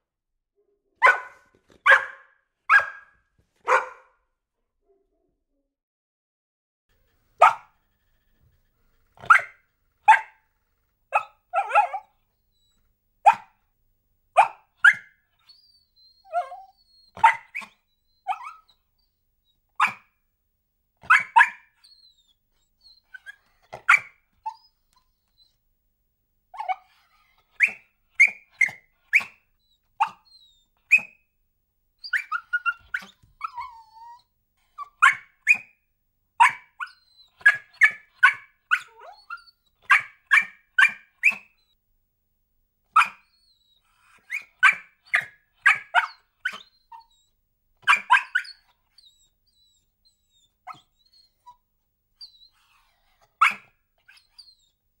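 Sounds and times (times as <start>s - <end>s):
dog barking: 1.0s - 4.2s, 7.4s - 7.8s, 9.2s - 10.4s, 11.1s - 12.1s, 13.2s - 13.6s, 14.4s - 15.2s, 17.2s - 18.6s, 19.8s - 20.1s, 21.0s - 21.7s, 23.7s - 24.2s, 30.0s - 30.3s, 34.9s - 35.7s, 36.4s - 41.5s, 42.9s - 43.3s, 44.3s - 46.7s, 47.8s - 48.6s, 53.4s - 53.7s
dog whining: 11.2s - 12.9s, 14.4s - 20.1s, 21.0s - 25.6s, 26.6s - 31.2s, 32.0s - 35.8s, 36.4s - 41.7s, 42.9s - 54.8s.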